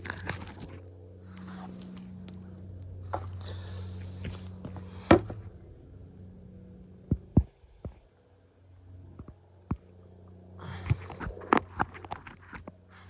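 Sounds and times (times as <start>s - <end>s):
low steady hum: 0.0s - 13.0s
sharp knocks and thumps: 5.0s - 5.4s.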